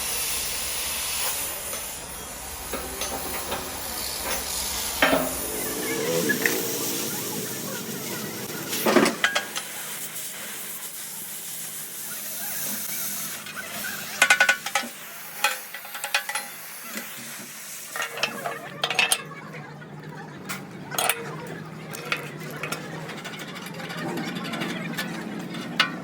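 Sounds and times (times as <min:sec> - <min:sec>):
steady hiss: 0:00.0 - 0:18.0
steel clanks and knocks: 0:02.7 - 0:05.8, 0:20.5 - 0:26.0.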